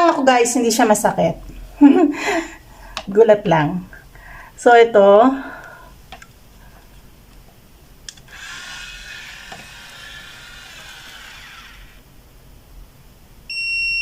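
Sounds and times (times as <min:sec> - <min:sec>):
curling iron motor whirring: 0:08.1 - 0:12.1
curling iron beep: 0:13.5 - 0:14.0.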